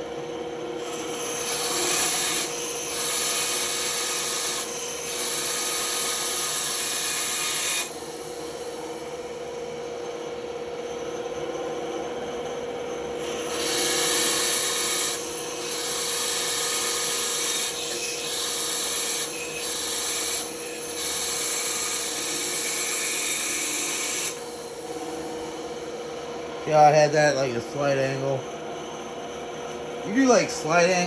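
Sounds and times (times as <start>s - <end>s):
band saw humming: 13.1s - 31.0s
band saw blade hissing cuts: 13.3s - 24.8s.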